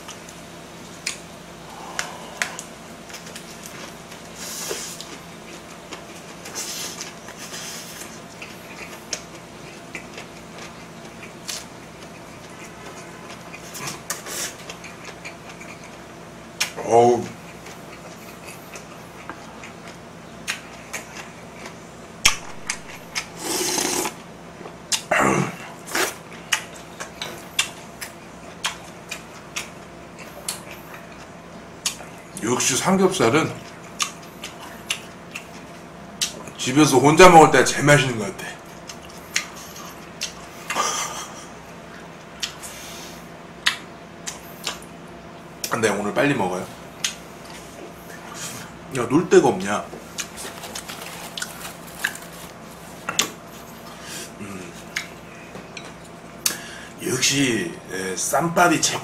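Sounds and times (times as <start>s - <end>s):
person chewing food: 0.9s - 16.8s, 17.4s - 25.1s, 25.8s - 32.4s, 33.6s - 36.6s, 38.6s - 45.7s, 49.9s - 56.6s
loud mouth noise: 1.6s - 2.8s
wet mouth clicks: 1.8s - 2.7s
wet crunchy chewing: 50.0s - 54.0s.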